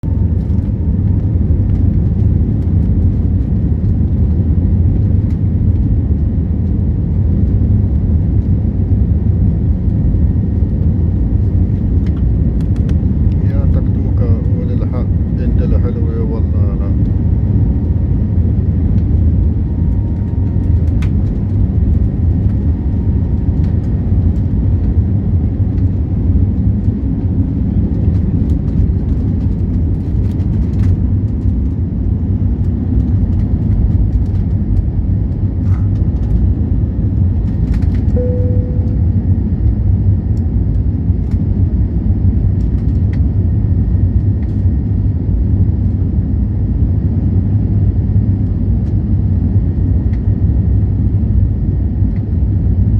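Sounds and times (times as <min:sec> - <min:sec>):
jet engines rumbling: 0:00.0 - 0:52.8
short tone: 0:38.2 - 0:39.4.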